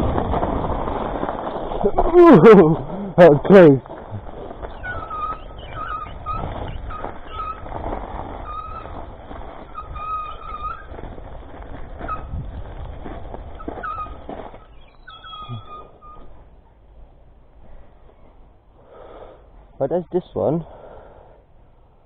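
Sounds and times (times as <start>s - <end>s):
tyres rumbling on rough ground: 0.0s - 21.1s
wind: 0.0s - 22.0s
bicycle brakes squealing: 4.4s - 11.1s, 12.0s - 12.4s, 13.6s - 16.4s.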